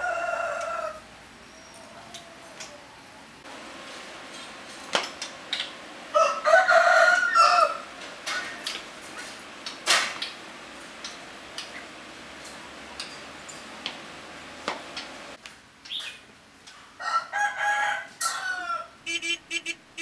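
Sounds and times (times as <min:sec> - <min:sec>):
rooster crowing: 0:00.0 - 0:03.3, 0:06.1 - 0:08.6, 0:17.0 - 0:19.1.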